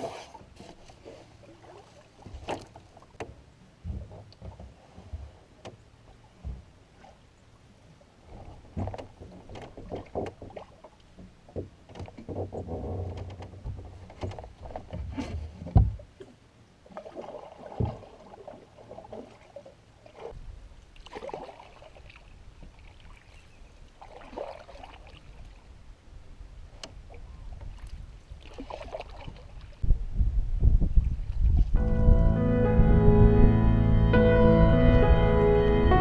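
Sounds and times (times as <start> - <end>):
paddle strokes in water: 0.0 - 25.8, 26.7 - 29.8
water sloshing against hull: 0.0 - 29.9
music: 31.8 - 36.0.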